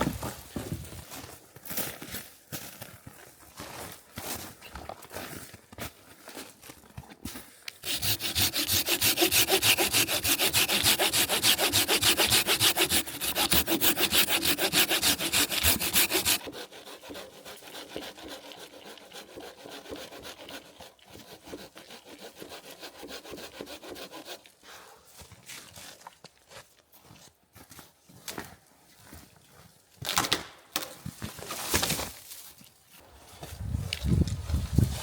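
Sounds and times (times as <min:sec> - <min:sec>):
hand saw cutting: 0:07.8 - 0:24.6.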